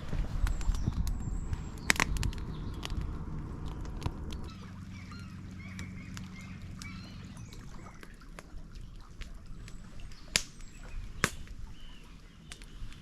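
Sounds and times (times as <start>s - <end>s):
water bird calls: 3.6s - 13.0s.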